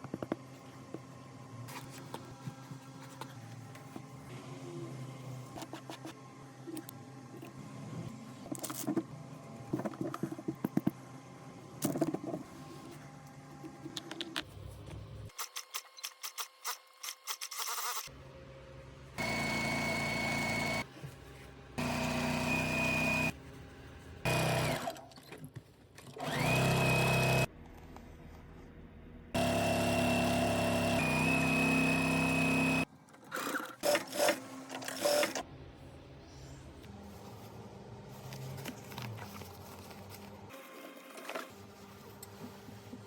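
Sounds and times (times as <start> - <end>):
sewing machine whining: 19.2 - 20.9, 21.8 - 23.3, 24.3 - 25.0, 26.2 - 27.5, 29.4 - 35.4.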